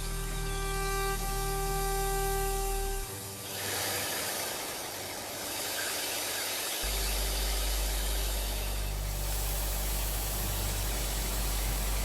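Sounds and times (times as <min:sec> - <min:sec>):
pressure washer motor drone: 0:03.6 - 0:12.0
water spraying hiss: 0:08.9 - 0:12.0.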